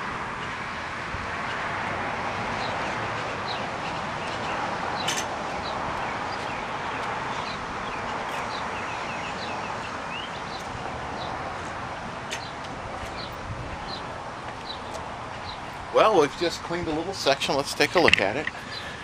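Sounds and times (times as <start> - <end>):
steady rushing noise: 0.0 - 19.0
small birds chirping: 2.6 - 15.9, 18.0 - 19.0.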